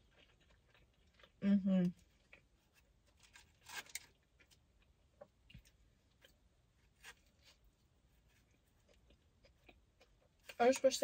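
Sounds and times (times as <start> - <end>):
person chewing food: 0.0 - 10.6.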